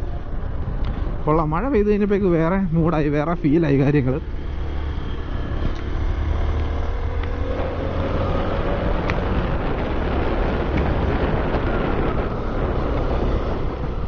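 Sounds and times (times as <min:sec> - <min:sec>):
wind noise: 0:00.0 - 0:14.0
tyre noise on wet road: 0:04.2 - 0:14.0.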